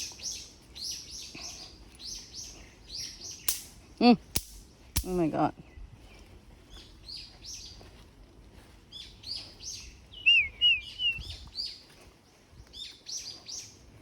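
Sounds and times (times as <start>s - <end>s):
wavy whistled bird notes: 0.0s - 3.5s, 8.9s - 11.9s
songbirds chirping: 0.0s - 14.0s.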